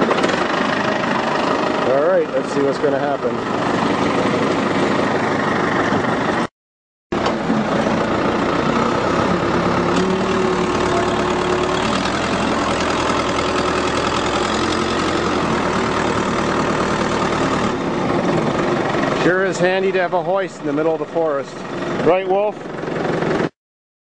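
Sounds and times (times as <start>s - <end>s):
hoist engine running: 0.0s - 6.5s, 7.1s - 23.5s
steady high tone: 7.2s - 22.3s.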